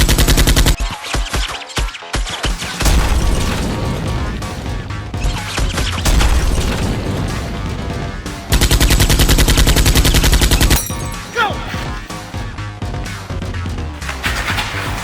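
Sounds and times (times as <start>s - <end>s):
automatic gunfire burst: 0.0s - 0.8s, 2.7s - 10.8s
gunfire: 0.0s - 0.8s, 2.4s - 11.4s
action music: 0.0s - 15.0s.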